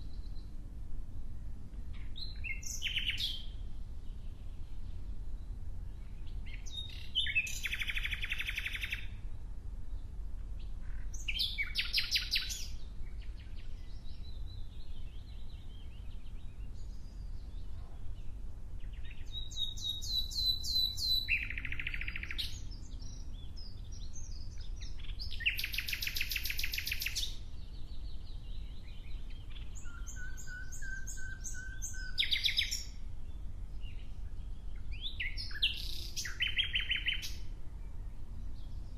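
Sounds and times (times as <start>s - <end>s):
songbird trilling: 2.0s - 3.6s, 6.0s - 9.2s, 10.8s - 33.0s, 34.7s - 37.4s.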